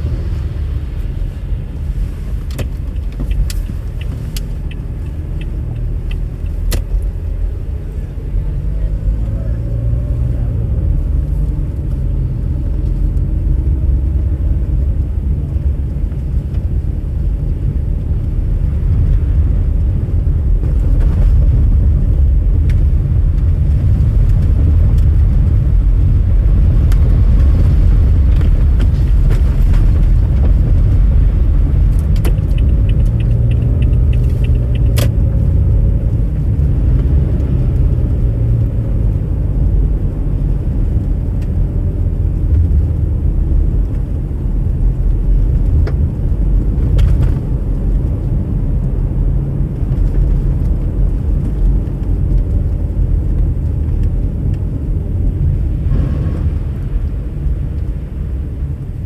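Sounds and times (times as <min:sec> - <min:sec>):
car driving rumble: 0:00.0 - 0:59.0
faint clicks: 0:02.5 - 0:07.0, 0:31.9 - 0:35.2.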